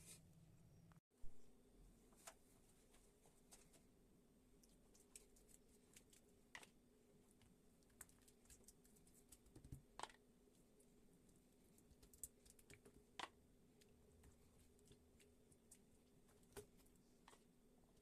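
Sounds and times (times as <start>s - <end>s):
small clicks and ticks: 11.8s - 17.4s.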